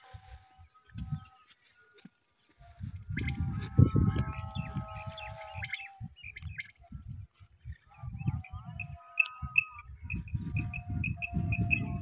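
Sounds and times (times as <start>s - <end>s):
birds calling: 3.1s - 12.0s.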